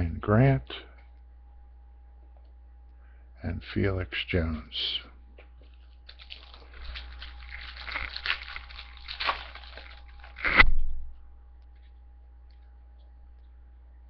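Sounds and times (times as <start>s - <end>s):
wrapper tearing and crinkling: 5.8s - 10.7s.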